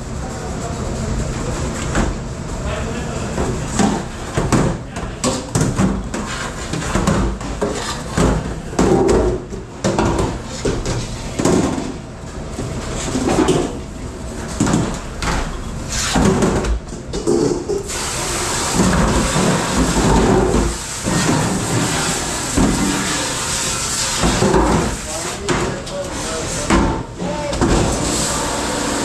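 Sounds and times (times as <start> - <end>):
dishes and pans clattering: 16.1 - 17.9.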